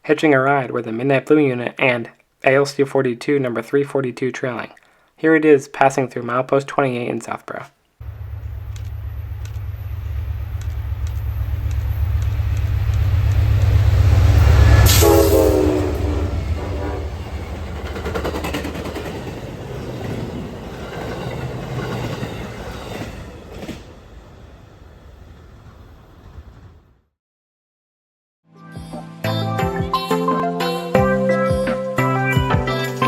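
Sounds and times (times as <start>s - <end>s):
diesel locomotive rumble: 8.0s - 26.8s
train horn: 8.1s - 17.9s
train cars clattering over rails: 8.1s - 24.5s.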